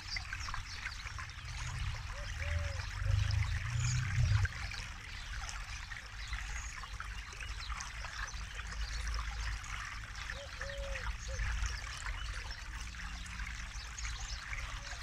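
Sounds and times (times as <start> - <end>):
river water babbling: 0.0 - 15.0
low rumble: 1.4 - 4.9.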